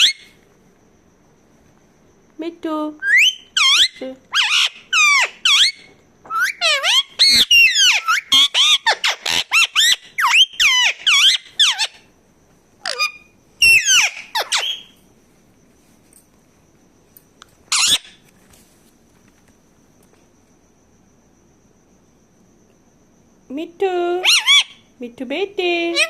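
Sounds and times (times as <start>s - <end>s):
parakeet screeching: 0.0s - 0.3s, 3.0s - 12.1s, 12.8s - 15.0s, 17.7s - 18.2s, 24.2s - 24.8s.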